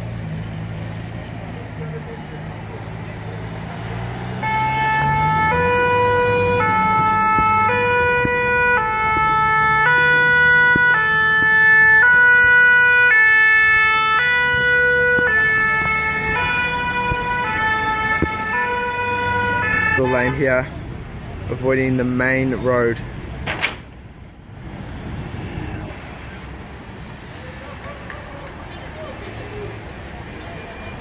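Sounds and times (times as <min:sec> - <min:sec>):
engine rumbling: 0:00.0 - 0:31.0
two-tone emergency siren: 0:04.3 - 0:20.4.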